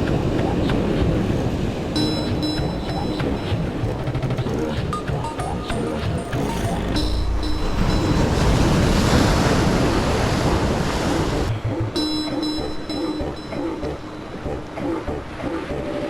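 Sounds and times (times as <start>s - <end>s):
background music with steady tones: 0.0s - 9.6s, 11.5s - 16.0s
sea surf breaking: 0.0s - 12.2s.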